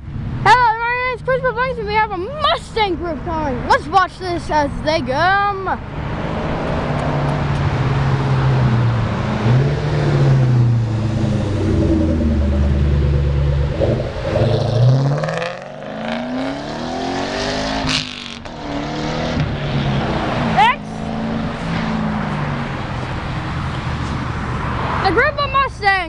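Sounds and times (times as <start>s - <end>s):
cars revving and accelerating: 0.0s - 25.7s.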